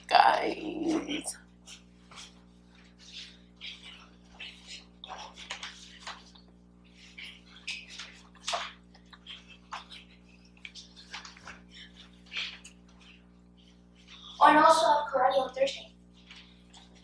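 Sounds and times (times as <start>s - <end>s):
chewing cookie: 1.6s - 14.4s.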